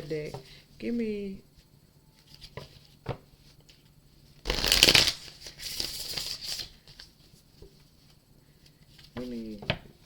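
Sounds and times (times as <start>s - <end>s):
cards riffling: 4.5s - 7.0s.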